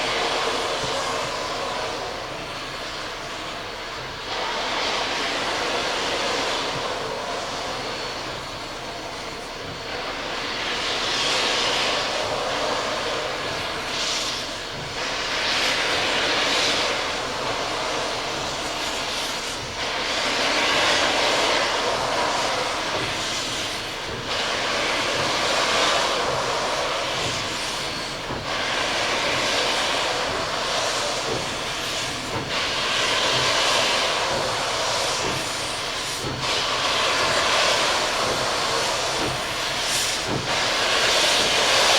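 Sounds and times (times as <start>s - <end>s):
locomotive rushing noise: 0.0s - 41.9s.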